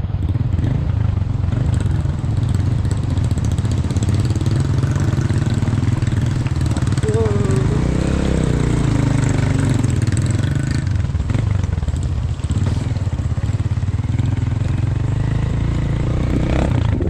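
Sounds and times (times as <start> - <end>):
small engine running: 7.0 - 8.6.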